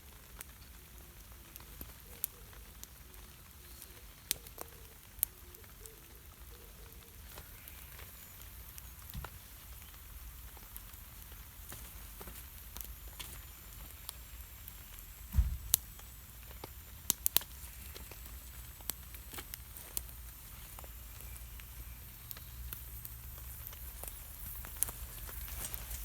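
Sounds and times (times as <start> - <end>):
campfire crackling and popping: 0.0 - 26.0
low thump: 15.3 - 15.8.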